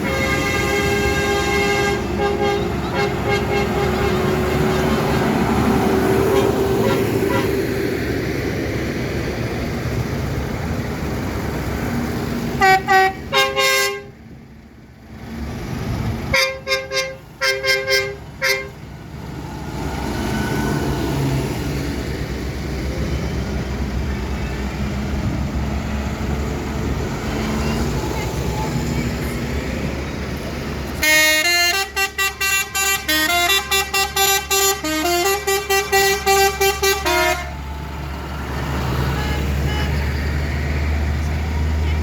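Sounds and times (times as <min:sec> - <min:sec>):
vehicle horns tooting: 0:00.0 - 0:05.5, 0:06.2 - 0:07.6, 0:12.6 - 0:14.2, 0:16.3 - 0:18.8, 0:31.0 - 0:37.6, 0:39.0 - 0:40.3
tractor engines running: 0:00.0 - 0:42.0.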